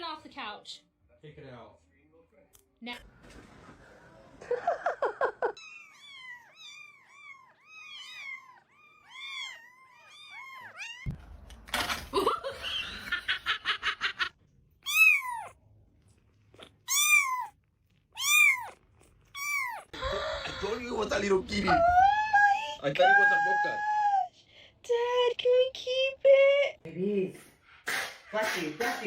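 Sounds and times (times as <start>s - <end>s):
kitten meowing: 5.6s - 11.1s, 14.8s - 15.6s, 16.5s - 20.0s.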